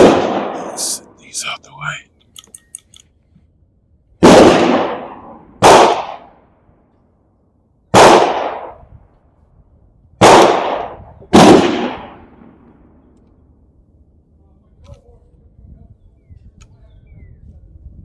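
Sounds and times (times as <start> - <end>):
loud gunshots: 0.0 - 1.0, 4.2 - 6.3, 7.9 - 8.8, 10.2 - 12.4.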